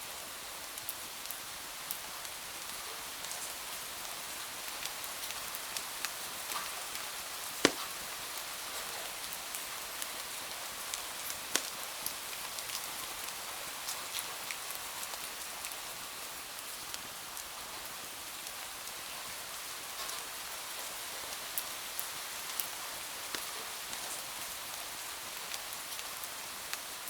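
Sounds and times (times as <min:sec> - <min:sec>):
wood fire crackling: 0:04.7 - 0:12.8, 0:22.2 - 0:24.4
loud fire crack: 0:05.8 - 0:08.2, 0:11.0 - 0:12.1.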